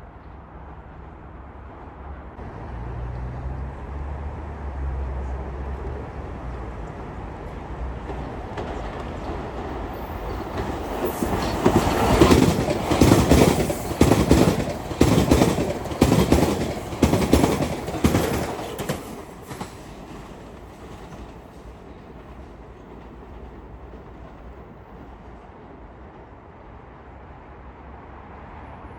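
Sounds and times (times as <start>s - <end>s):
train rumble: 1.0s - 27.6s
train wheels clacking on rail joints: 5.2s - 25.1s.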